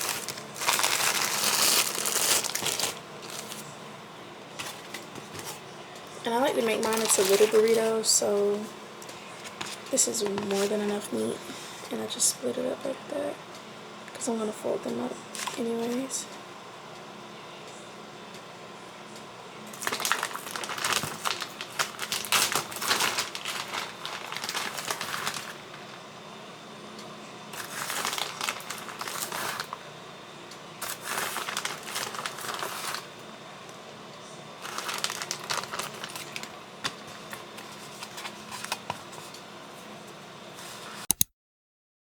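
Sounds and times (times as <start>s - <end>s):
packaging crinkling: 0.0s - 3.7s, 6.3s - 8.6s, 15.4s - 16.1s, 19.7s - 26.0s, 27.6s - 29.8s, 30.8s - 33.2s, 34.6s - 39.4s
steady low hum: 0.0s - 41.1s.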